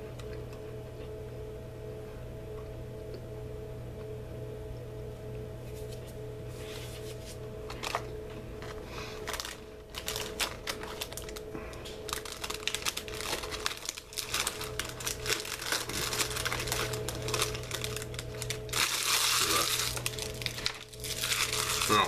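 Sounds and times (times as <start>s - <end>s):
crunching crispy cookie: 8.6s - 22.0s.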